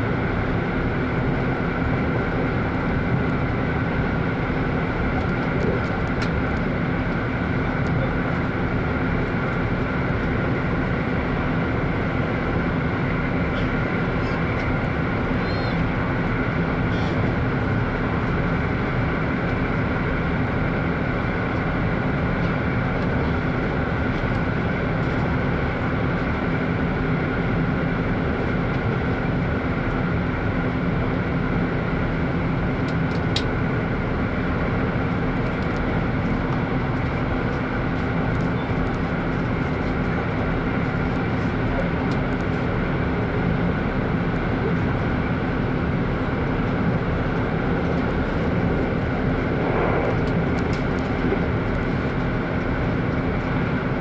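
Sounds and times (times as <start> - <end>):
constant hum: 0.0 - 54.0
train wheels rumbling on rails: 46.3 - 53.8.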